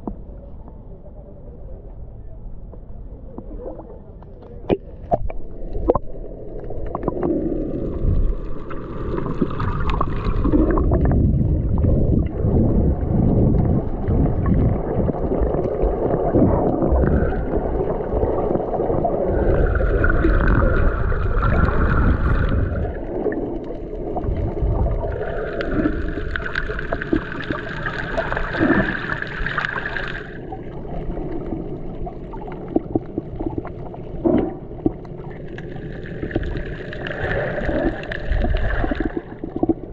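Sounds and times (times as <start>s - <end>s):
wind rumbling on microphone: 1.7s - 27.6s.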